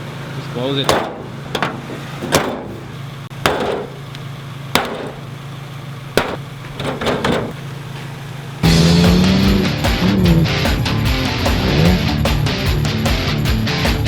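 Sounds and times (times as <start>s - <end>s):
steady low hum: 0.0s - 13.7s
sharp hammer-like knocks: 0.9s - 2.8s, 3.4s - 4.0s, 4.8s - 5.2s, 6.2s - 7.6s.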